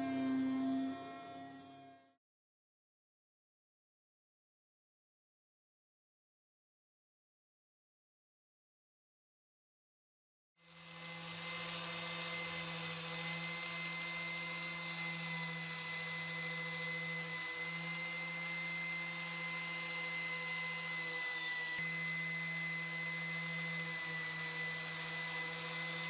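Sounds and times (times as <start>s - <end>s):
power tool motor humming: 10.6s - 26.0s.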